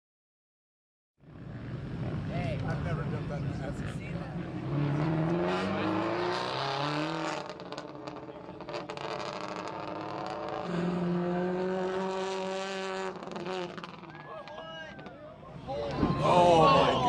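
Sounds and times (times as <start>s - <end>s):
rally car engine at high revs: 4.2s - 14.1s.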